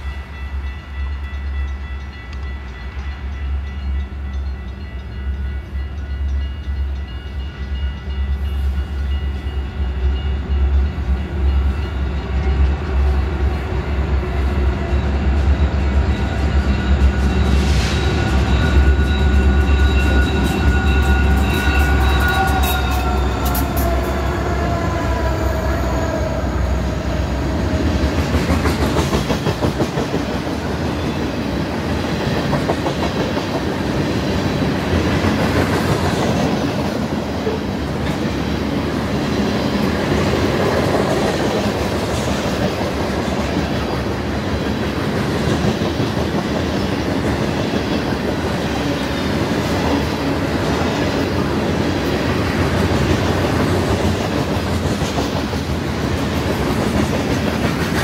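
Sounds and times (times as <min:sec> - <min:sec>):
train cars clickety-clack: 0:00.0 - 0:58.0
train horn chord: 0:17.6 - 0:27.8.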